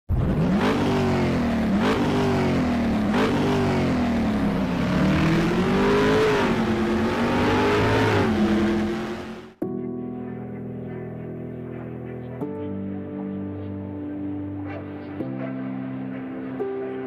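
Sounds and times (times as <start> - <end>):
motorcycle engine revving: 0.1 - 9.6.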